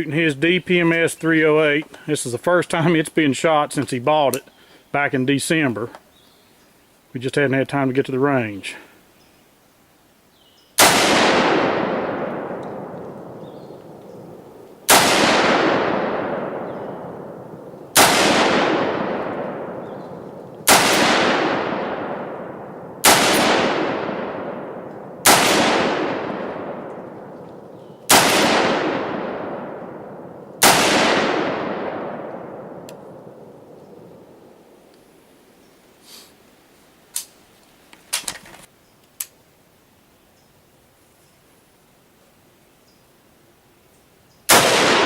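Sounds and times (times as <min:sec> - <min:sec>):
rifle shots: 0:10.8 - 0:34.5, 0:44.5 - 0:45.0.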